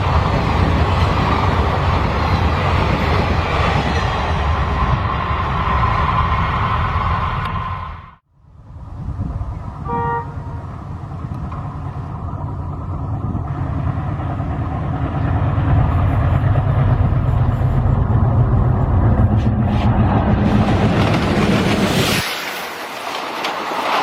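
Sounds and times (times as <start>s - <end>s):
train rumbling: 0.0s - 24.0s
short train horn toot: 9.8s - 10.6s.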